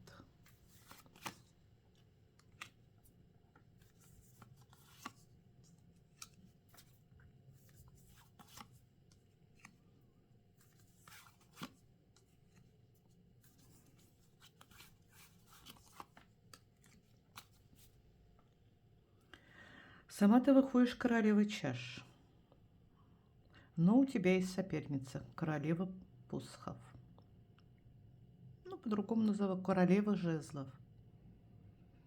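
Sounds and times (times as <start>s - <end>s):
cards tapping and flicking: 0.7s - 1.5s, 2.4s - 2.8s.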